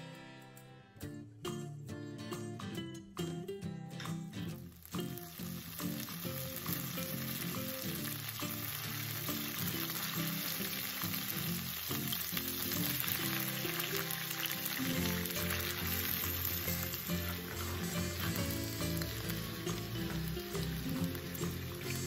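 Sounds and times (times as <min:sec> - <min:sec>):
light background music: 0:00.0 - 0:22.0
oil sizzling in a pan: 0:04.6 - 0:22.0.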